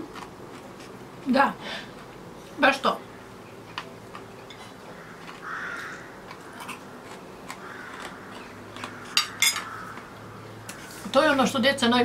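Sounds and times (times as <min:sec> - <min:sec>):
person chewing crunchy food: 0:00.0 - 0:01.2, 0:03.4 - 0:10.9.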